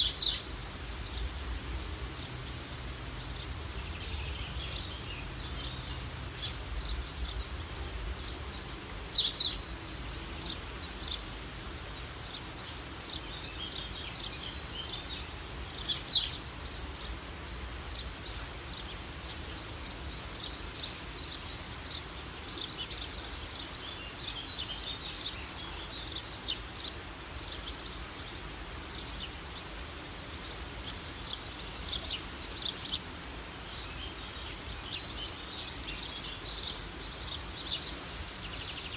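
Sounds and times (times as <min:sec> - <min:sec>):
birds chirping: 0:00.0 - 0:17.2
steady background hiss: 0:00.0 - 0:38.9.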